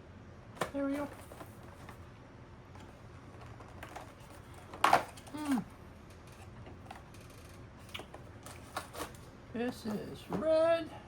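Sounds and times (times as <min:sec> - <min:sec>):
packaging clicking and rustling: 0:02.8 - 0:05.6, 0:06.2 - 0:09.3.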